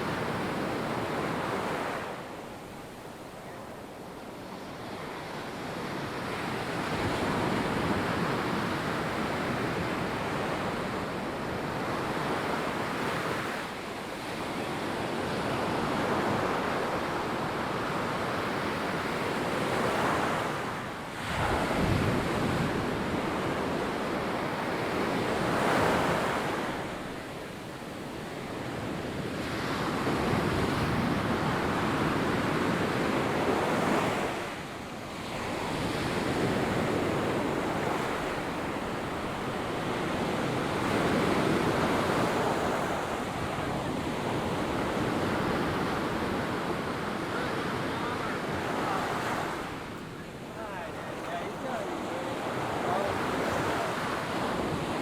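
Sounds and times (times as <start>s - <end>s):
ocean surf on sandy beach: 0.0s - 55.0s
wind gusting over microphone: 21.1s - 26.7s.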